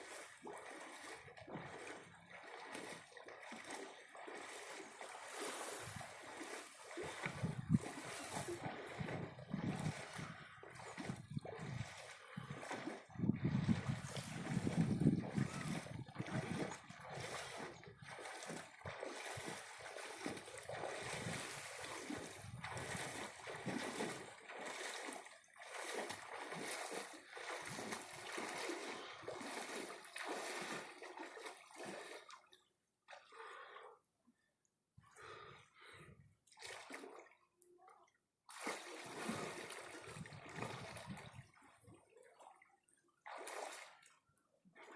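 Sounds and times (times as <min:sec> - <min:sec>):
sea water splashing: 0:00.0 - 0:32.5, 0:38.5 - 0:41.5.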